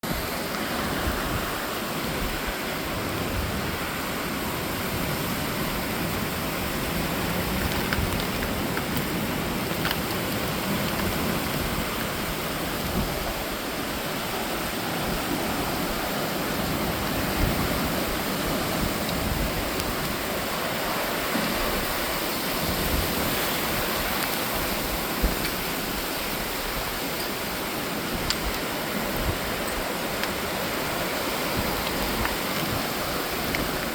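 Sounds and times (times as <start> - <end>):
steady rain hiss: 0.0 - 33.9
raindrop ticks: 7.3 - 12.1, 28.1 - 30.8, 33.4 - 33.9.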